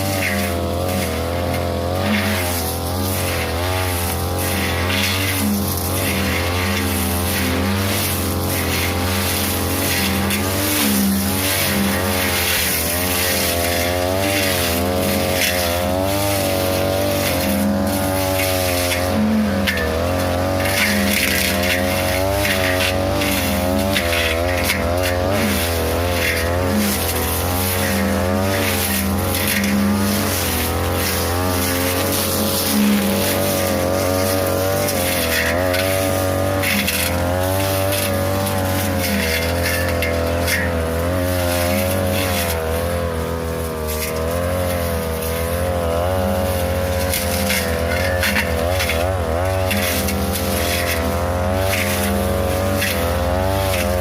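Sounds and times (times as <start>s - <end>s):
blade striking stems: 0.0s - 54.0s
brush cutter engine running: 0.0s - 54.0s.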